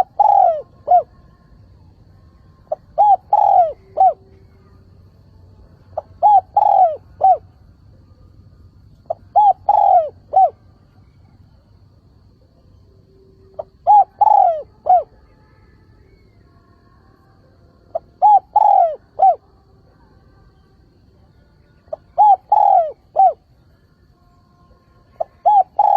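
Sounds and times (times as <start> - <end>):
dove cooing: 0.0 - 1.3, 2.6 - 4.9, 5.9 - 8.0, 9.0 - 11.6, 12.4 - 15.2, 17.9 - 19.5, 21.9 - 23.5, 25.1 - 25.9.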